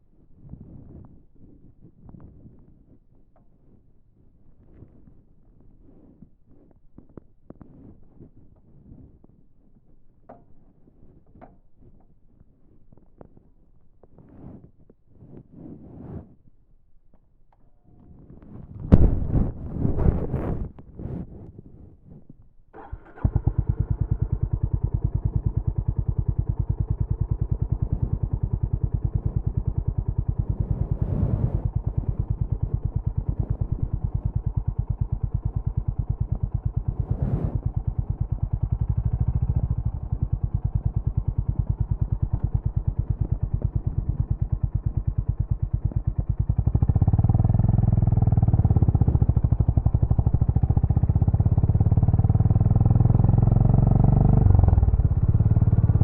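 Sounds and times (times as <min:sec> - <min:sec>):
motorcycle engine running: 0:22.7 - 0:56.0.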